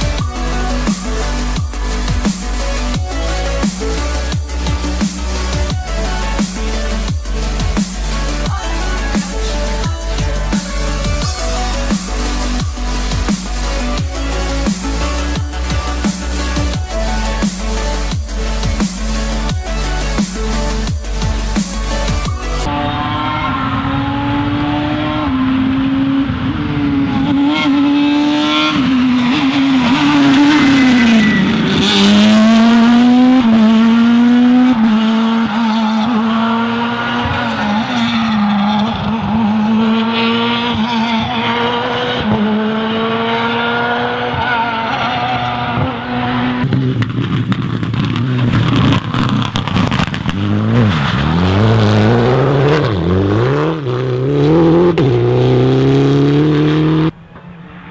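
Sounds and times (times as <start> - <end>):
rally car engines revving: 0.0 - 57.9
car accelerating hard: 22.7 - 57.9.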